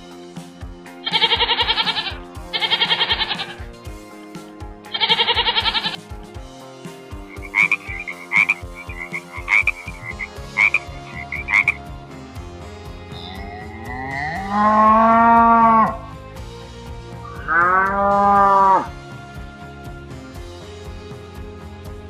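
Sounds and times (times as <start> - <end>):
cow mooing: 13.2 - 16.1, 17.3 - 18.9.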